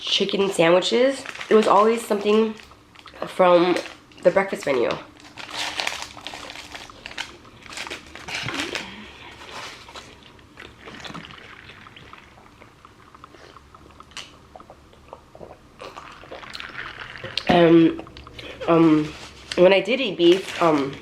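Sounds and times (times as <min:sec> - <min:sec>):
person chewing food: 0:06.1 - 0:18.6.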